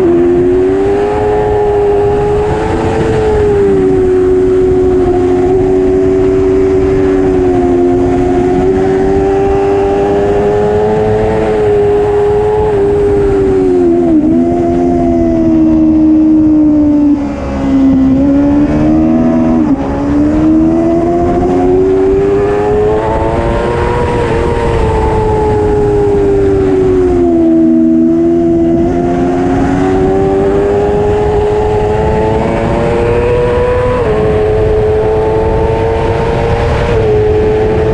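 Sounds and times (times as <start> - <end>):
motorcycle engine at high revs: 0.0 - 37.9
wind and road noise: 0.0 - 37.9.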